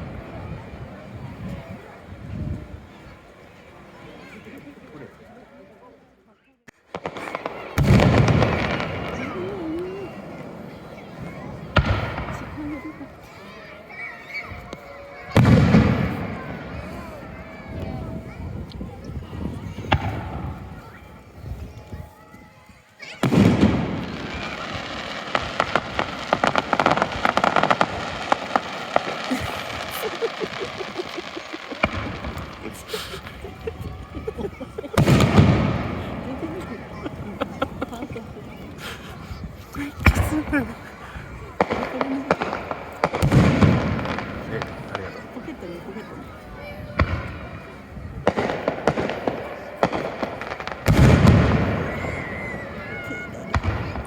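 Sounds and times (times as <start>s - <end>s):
firework burst rumble: 6.9s - 13.5s, 14.6s - 21.8s, 23.2s - 45.6s, 46.9s - 54.0s
firework crackling snaps: 23.1s - 45.4s, 47.0s - 54.0s.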